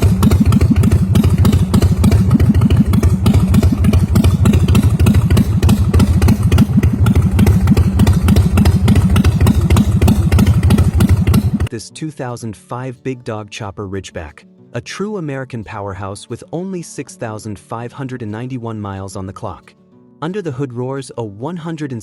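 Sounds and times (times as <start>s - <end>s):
motorcycle engine idling loudly: 0.0s - 11.7s.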